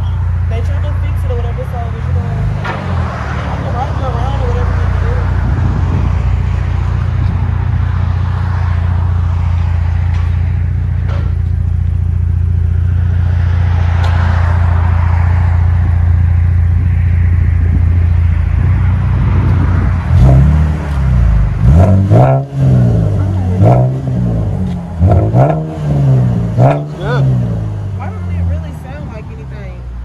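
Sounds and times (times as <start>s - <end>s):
engine revving: 0.0s - 29.7s
car exhaust idling: 0.0s - 30.0s.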